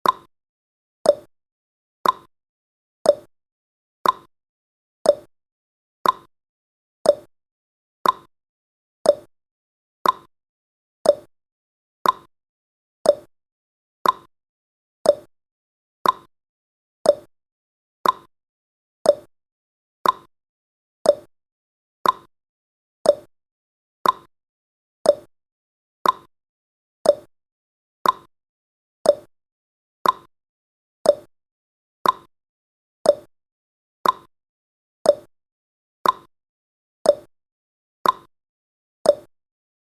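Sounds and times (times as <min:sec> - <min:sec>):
timer ticking clicks: 0:00.0 - 0:00.3, 0:01.0 - 0:01.3, 0:02.0 - 0:02.3, 0:03.0 - 0:03.3, 0:04.0 - 0:04.3, 0:05.0 - 0:05.3, 0:06.0 - 0:06.3, 0:07.0 - 0:07.3, 0:08.0 - 0:08.3, 0:09.0 - 0:09.3, 0:10.0 - 0:10.3, 0:11.0 - 0:11.3, 0:12.0 - 0:12.3, 0:13.0 - 0:13.3, 0:14.0 - 0:14.3, 0:15.0 - 0:15.3, 0:16.0 - 0:16.3, 0:17.0 - 0:17.3, 0:18.0 - 0:18.3, 0:19.0 - 0:19.3, 0:20.0 - 0:20.3, 0:21.0 - 0:21.3, 0:22.0 - 0:22.3, 0:23.0 - 0:23.3, 0:24.0 - 0:24.3, 0:25.0 - 0:25.3, 0:26.0 - 0:26.3, 0:27.0 - 0:27.3, 0:28.0 - 0:28.3, 0:29.0 - 0:29.3, 0:30.0 - 0:30.3, 0:31.0 - 0:31.3, 0:32.0 - 0:32.3, 0:33.0 - 0:33.3, 0:34.0 - 0:34.3, 0:35.0 - 0:35.3, 0:36.0 - 0:36.3, 0:37.0 - 0:37.3, 0:38.0 - 0:38.3, 0:39.0 - 0:39.3.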